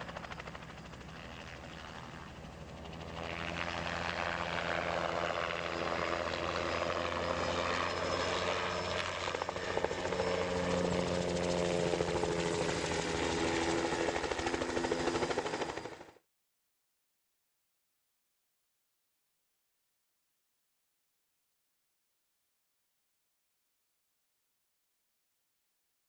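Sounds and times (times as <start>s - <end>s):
helicopter running: 0.0s - 16.2s.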